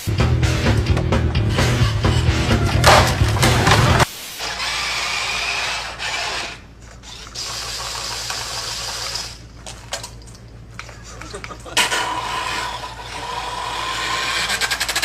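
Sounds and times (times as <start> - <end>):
low hum: 0.0 - 4.1
small machine whirring: 4.4 - 9.4, 11.8 - 15.0.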